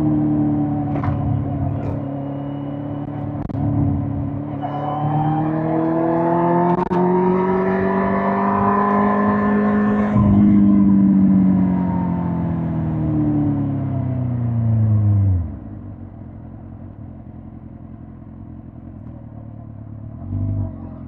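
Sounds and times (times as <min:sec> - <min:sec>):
motorcycle engine revving: 0:00.0 - 0:15.7.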